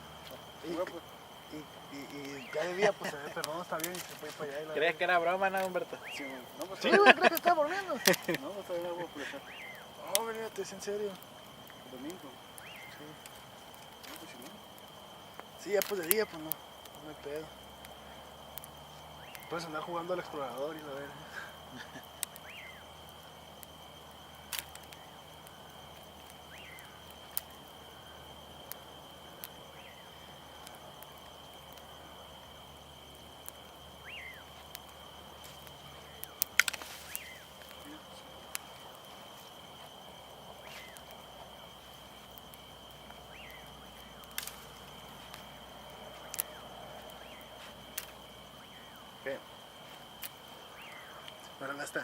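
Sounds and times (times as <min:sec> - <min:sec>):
campfire crackling and popping: 0:00.0 - 0:52.0
crickets trilling: 0:00.0 - 0:52.0.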